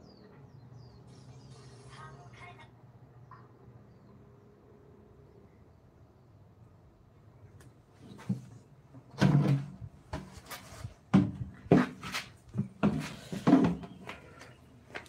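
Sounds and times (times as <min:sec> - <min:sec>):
hollow wooden knocks and clatters: 0:08.0 - 0:14.2.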